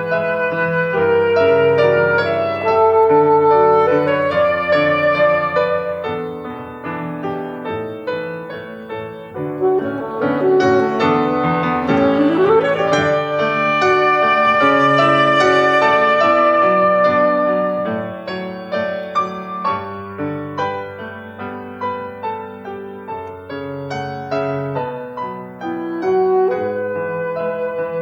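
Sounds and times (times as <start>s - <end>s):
violin playing: 0.0s - 6.4s, 9.4s - 18.2s
piano playing: 0.0s - 28.0s.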